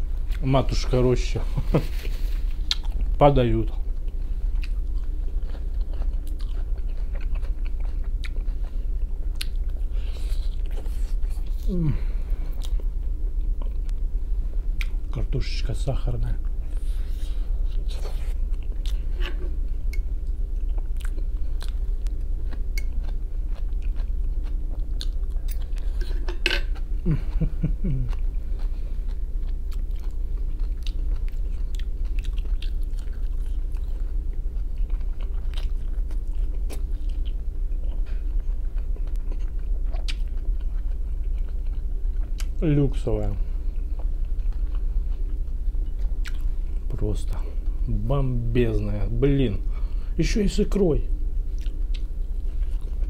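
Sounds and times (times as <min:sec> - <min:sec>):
steady low hum: 0:00.0 - 0:53.0
chewing and wet mouth clicks: 0:02.7 - 0:03.0, 0:09.4 - 0:09.8, 0:29.7 - 0:34.0, 0:39.0 - 0:42.6, 0:44.3 - 0:46.5, 0:51.5 - 0:52.1.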